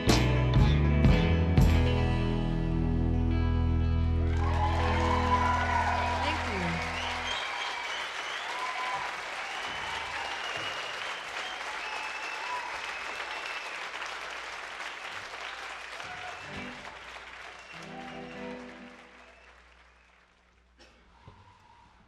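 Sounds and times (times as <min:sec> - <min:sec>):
audience applauding and cheering: 0:04.1 - 0:20.8
whistling: 0:06.8 - 0:14.2, 0:15.5 - 0:20.5, 0:21.2 - 0:22.0.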